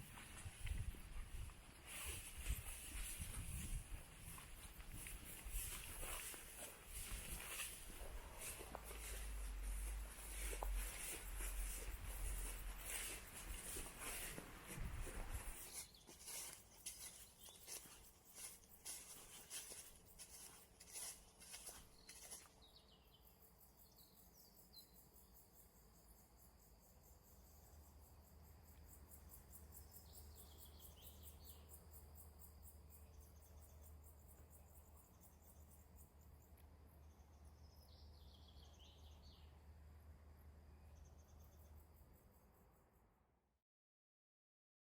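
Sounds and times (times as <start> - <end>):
insects chirping: 0.0 - 43.2
low steady rumble: 7.0 - 15.6.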